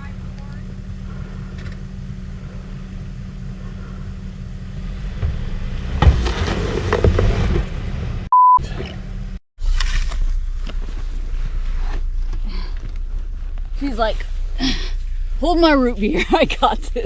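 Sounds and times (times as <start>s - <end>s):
truck engine idling: 0.0s - 9.4s, 10.1s - 17.0s
scraping: 0.9s - 15.4s
censor bleep: 8.3s - 8.7s.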